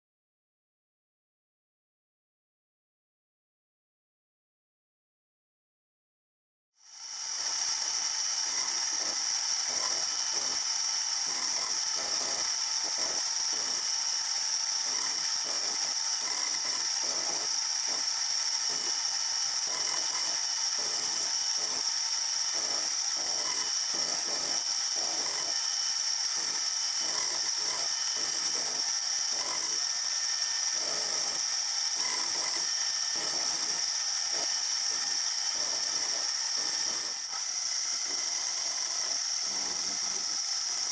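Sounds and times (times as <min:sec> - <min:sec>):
machine tool cutting metal whine: 0:06.8 - 0:40.9.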